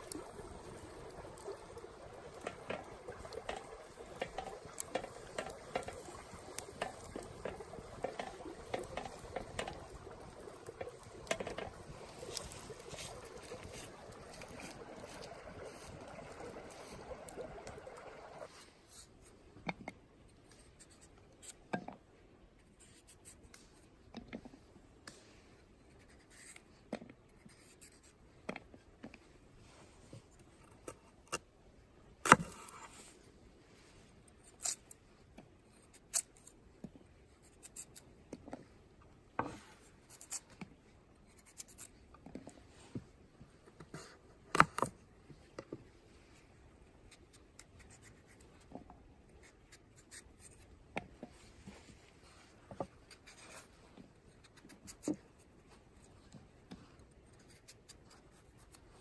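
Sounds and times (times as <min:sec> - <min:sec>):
knife scraping and cutting potatoes: 0:34.4 - 0:35.0, 0:39.4 - 0:40.6.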